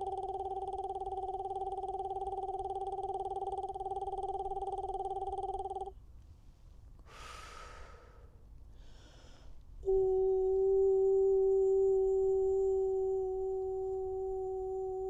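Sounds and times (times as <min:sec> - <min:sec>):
woman breathing: 0:07.0 - 0:09.6
woman holding a long note: 0:09.8 - 0:15.0.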